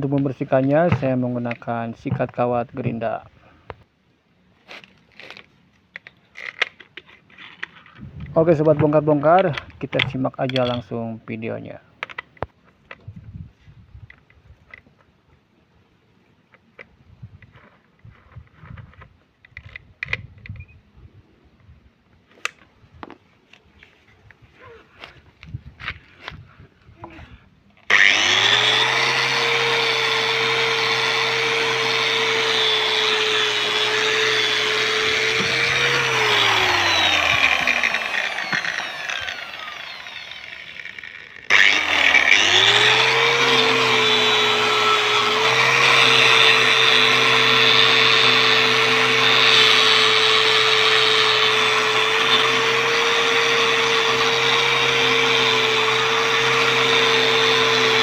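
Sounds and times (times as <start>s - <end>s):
angle grinder with wire brush: 0.0s - 3.3s, 8.0s - 11.6s, 27.9s - 58.0s.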